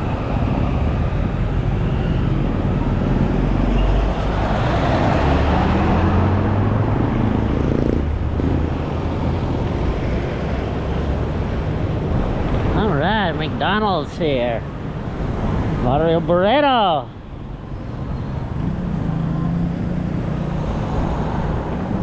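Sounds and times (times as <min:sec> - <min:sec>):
road noise: 0:00.0 - 0:22.0
vehicle engine passing: 0:02.3 - 0:11.7.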